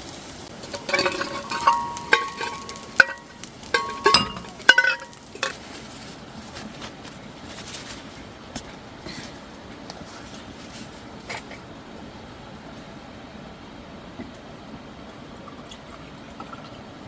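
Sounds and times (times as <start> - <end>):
metal utensil clinking on cookware: 0.6 - 5.6.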